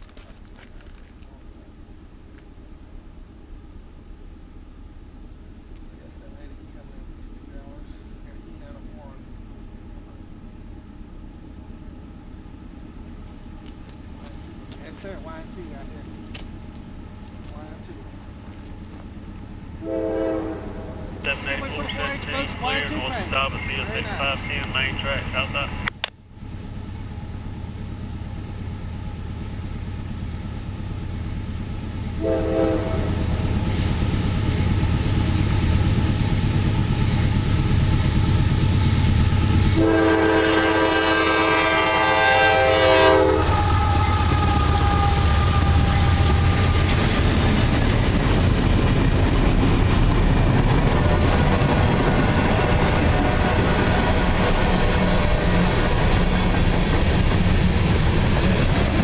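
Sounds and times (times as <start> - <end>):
freight train rumbling past: 0.0 - 59.0
train horn: 19.8 - 25.8, 32.2 - 33.6, 39.2 - 47.6, 50.8 - 57.0.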